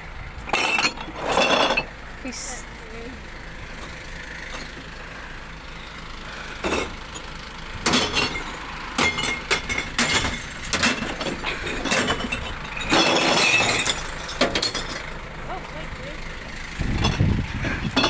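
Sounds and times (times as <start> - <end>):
truck engine idling: 0.0 - 18.0
glass bottles clinking and crashing: 0.5 - 2.0, 6.6 - 15.2.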